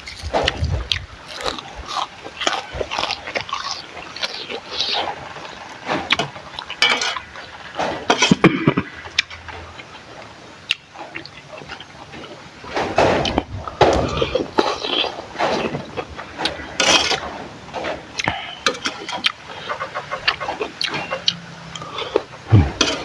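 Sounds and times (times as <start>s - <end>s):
chewing: 0.0s - 23.0s.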